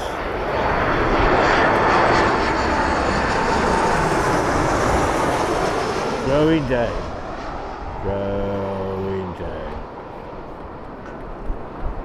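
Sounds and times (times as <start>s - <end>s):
airliner engines rushing: 0.0s - 12.0s
faint jet engine whine: 0.0s - 12.0s.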